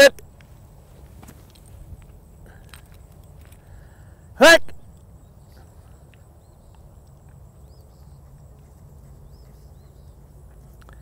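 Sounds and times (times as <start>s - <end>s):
low wind rumble: 0.2s - 11.0s
small bird chirping faintly: 4.8s - 11.0s.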